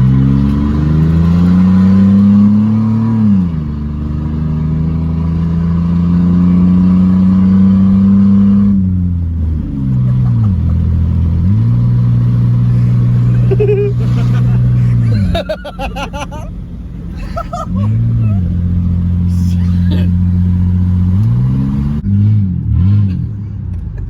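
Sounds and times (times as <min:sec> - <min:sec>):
car engine revving open exhaust: 0:00.0 - 0:24.0.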